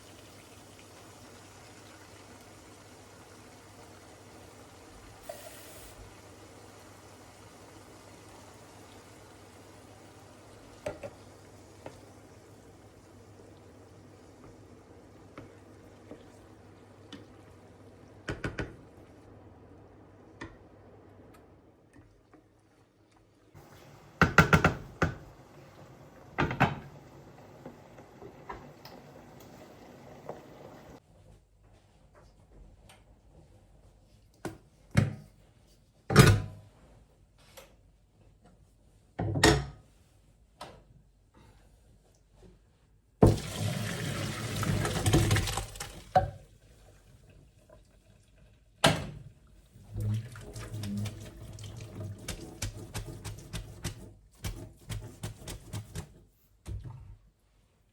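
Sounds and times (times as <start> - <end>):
water running from a tap: 0.0 - 12.3, 43.2 - 46.4, 49.8 - 53.6.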